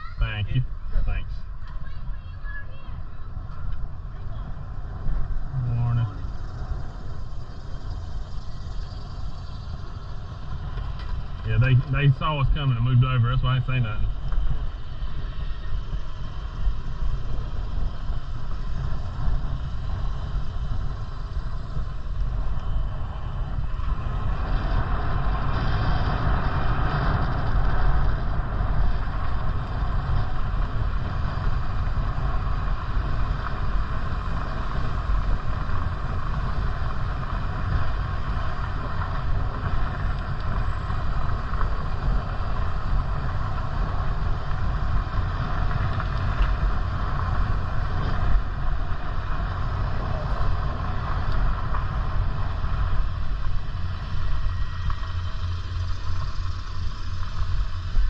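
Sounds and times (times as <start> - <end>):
low wind rumble: 0.0 - 58.0
road noise while cycling: 0.0 - 58.0.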